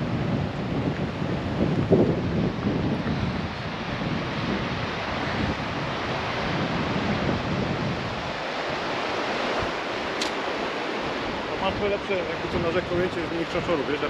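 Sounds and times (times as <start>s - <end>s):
wind blowing over microphone: 0.0s - 14.0s.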